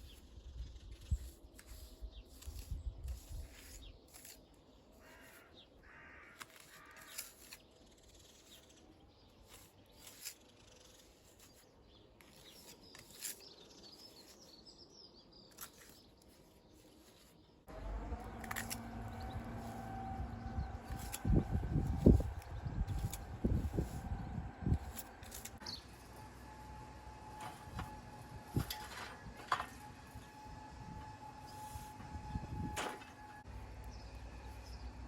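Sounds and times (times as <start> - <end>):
bird calls: 4.8 - 7.6.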